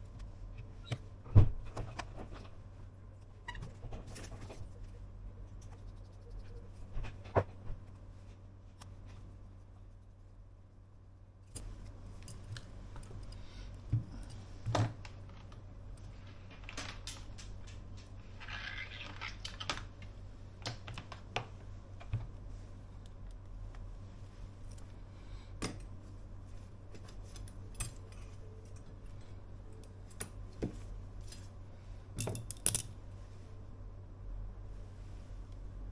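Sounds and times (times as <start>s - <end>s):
low hum: 0.0s - 18.5s.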